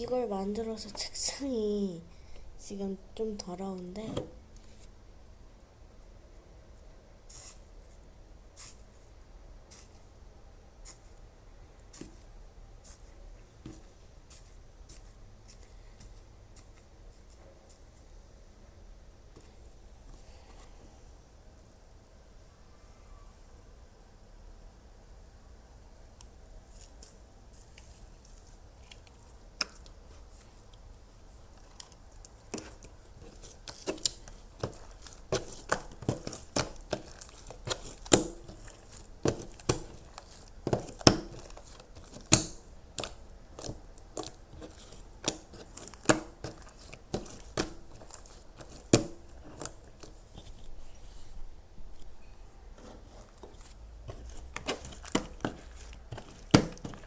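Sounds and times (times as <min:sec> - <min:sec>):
crisp crunching: 0:31.4 - 0:57.0.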